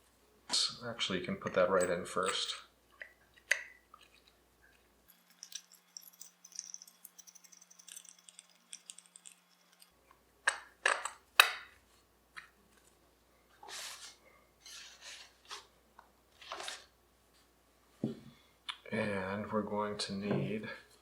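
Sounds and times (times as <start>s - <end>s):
metal parts clicking and clinking: 1.4s - 2.7s, 5.0s - 11.2s.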